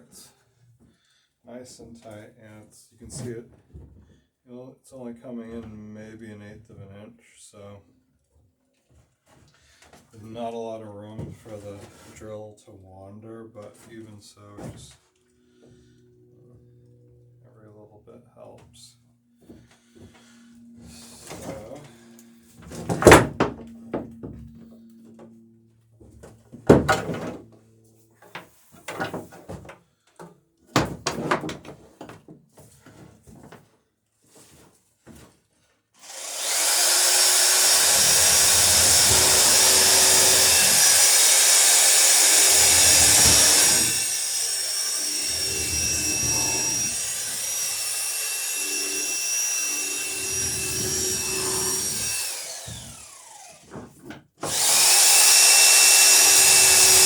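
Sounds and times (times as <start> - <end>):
knocks and clatters: 22.6 - 24.6, 26.0 - 27.6, 28.2 - 33.7, 37.6 - 47.9
electric drill whining: 36.0 - 53.8, 54.4 - 57.0.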